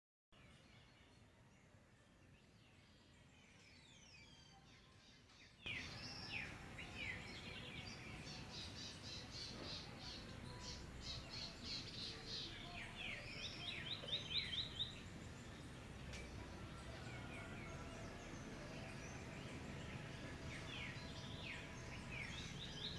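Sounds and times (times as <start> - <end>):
birds whistling and chirping: 3.4 - 16.3.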